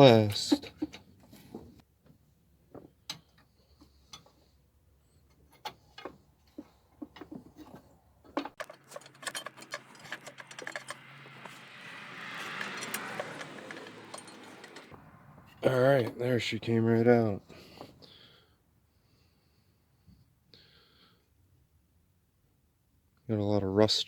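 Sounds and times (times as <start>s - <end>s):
metal tube scraping rattle: 8.4s - 15.0s.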